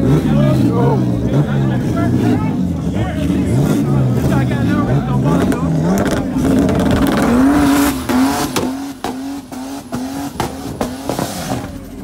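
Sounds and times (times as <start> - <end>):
car engine revving on limiter: 0.0 - 12.0.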